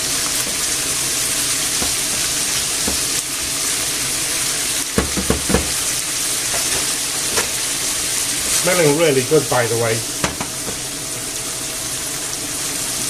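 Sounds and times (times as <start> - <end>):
meat sizzling in a frying pan: 0.0 - 13.0
wooden spatulas knocking against pan: 5.0 - 5.8, 10.2 - 10.8.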